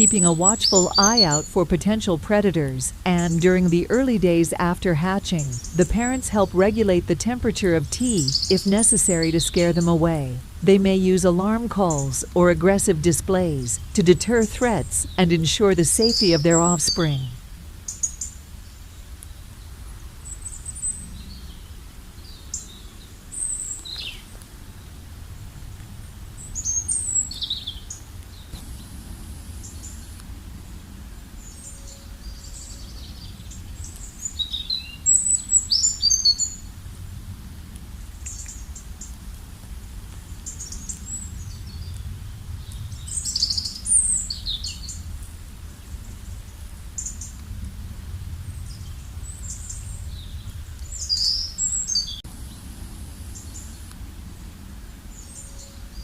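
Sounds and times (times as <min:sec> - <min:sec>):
bird chirps and whistled calls: 0:08.2 - 0:09.6.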